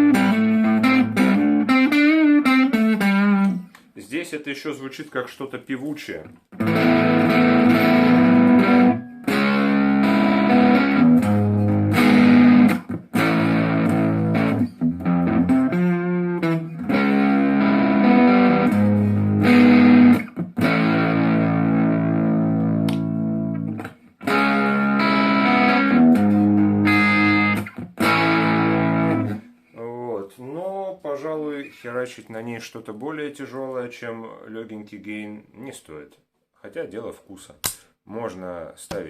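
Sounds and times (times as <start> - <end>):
overdriven electric guitar chords: 0.0 - 3.6, 6.6 - 29.6.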